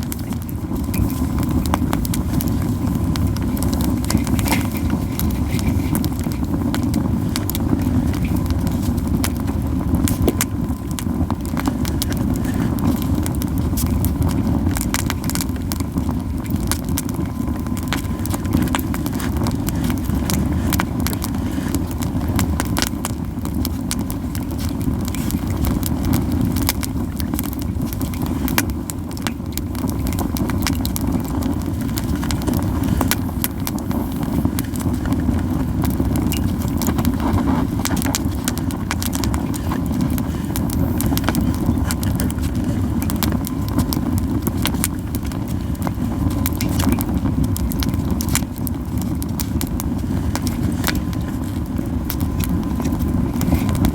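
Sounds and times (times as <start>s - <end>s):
campfire crackling and popping: 0.0s - 53.9s
low rumble of fire: 0.0s - 53.9s.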